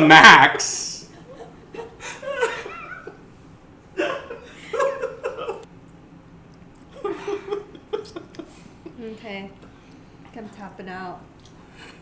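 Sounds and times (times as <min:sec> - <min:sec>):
people laughing: 0:00.0 - 0:03.2, 0:04.0 - 0:05.7, 0:07.0 - 0:08.6.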